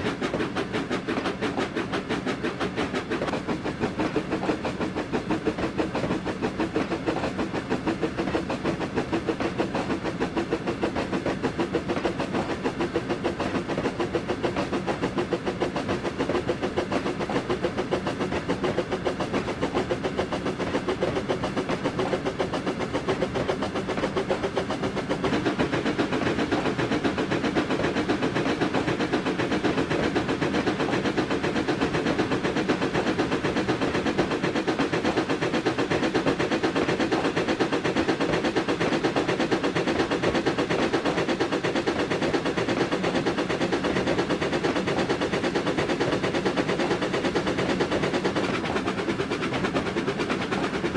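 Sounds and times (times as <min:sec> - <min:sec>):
train running on tracks: 0:00.0 - 0:50.9.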